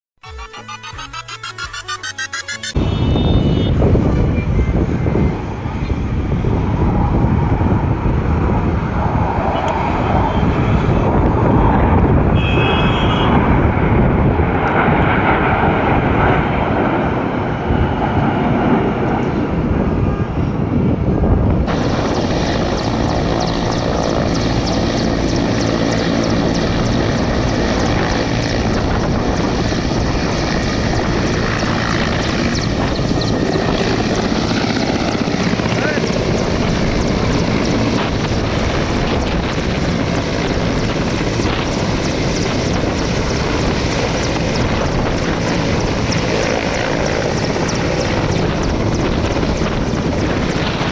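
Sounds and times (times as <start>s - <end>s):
aircraft engines flying past: 1.0s - 50.9s.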